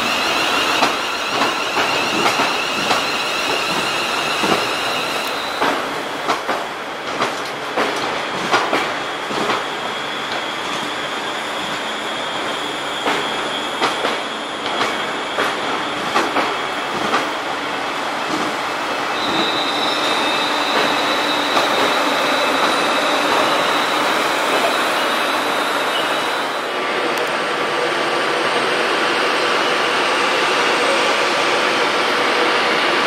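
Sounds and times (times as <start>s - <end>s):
train wheels clicking over rail joints: 0.7s - 11.0s, 13.0s - 17.4s, 18.2s - 20.0s, 20.6s - 23.8s
high-pitched wheel squeal: 19.1s - 26.7s.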